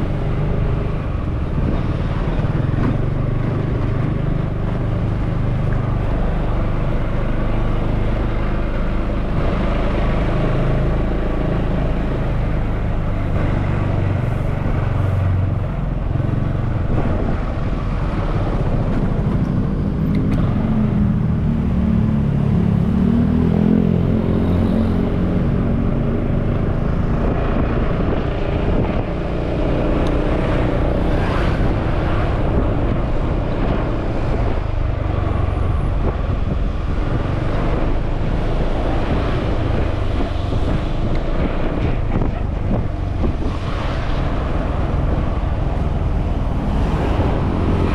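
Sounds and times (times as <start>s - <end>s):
motorbike engine revving: 0.0s - 47.9s
wind rumbling on microphone: 0.0s - 47.9s.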